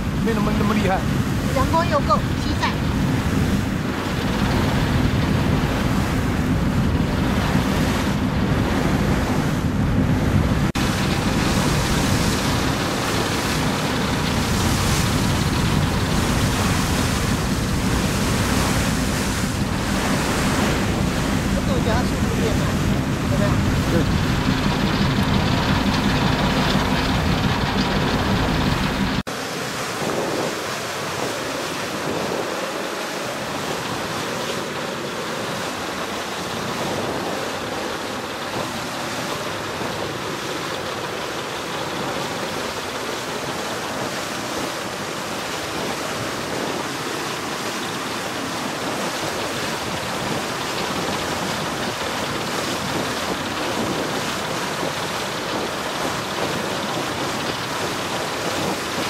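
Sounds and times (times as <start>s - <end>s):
rushing water: 0.0s - 59.0s
wind on microphone: 0.0s - 59.0s
low rumble: 4.0s - 29.2s.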